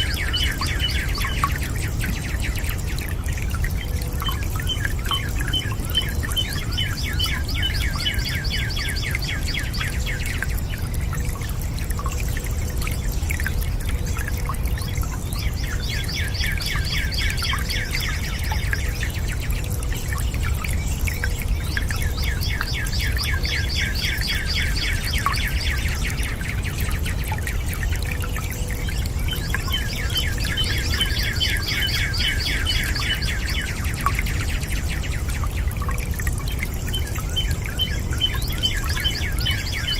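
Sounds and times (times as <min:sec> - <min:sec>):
birds singing long trills: 0:00.0 - 0:39.9
rushing water: 0:00.0 - 0:39.9.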